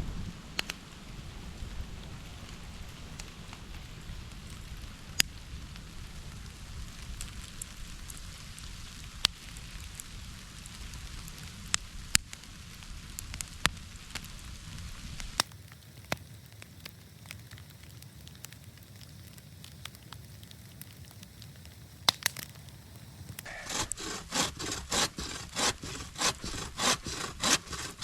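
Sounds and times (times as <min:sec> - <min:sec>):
faint hiss: 0:00.0 - 0:28.0
freezing rain ticking: 0:00.2 - 0:28.0
hand saw cutting wood: 0:23.5 - 0:28.0.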